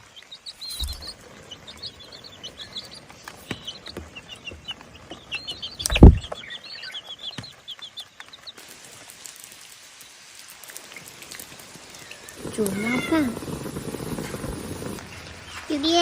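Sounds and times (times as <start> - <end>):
birds chirping high peeps: 0.0 - 8.6, 10.9 - 16.0
loud thump: 5.9 - 6.3.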